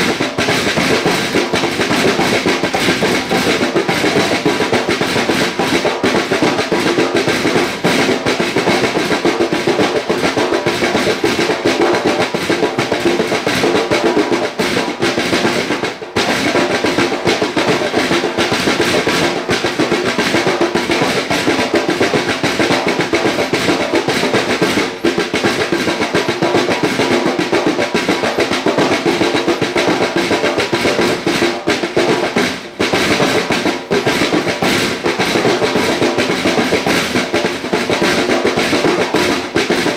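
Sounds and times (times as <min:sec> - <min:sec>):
fast drumming: 0:00.0 - 0:39.9.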